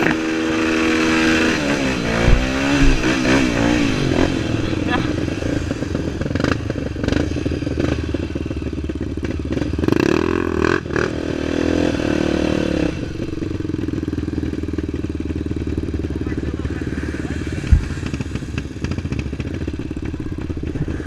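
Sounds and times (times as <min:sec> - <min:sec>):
motorcycle engine under load: 0:00.0 - 0:21.0
bike knocking and rattling: 0:01.3 - 0:10.2.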